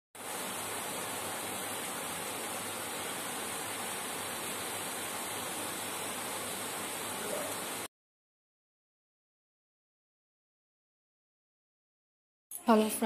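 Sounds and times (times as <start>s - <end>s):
rain hissing: 0.2s - 7.9s.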